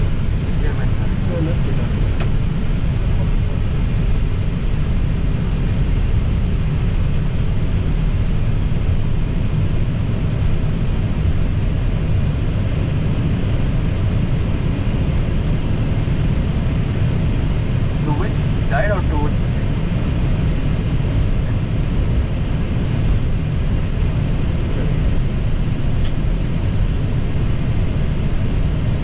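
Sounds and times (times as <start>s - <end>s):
cockpit rumble and hiss: 0.0s - 29.0s.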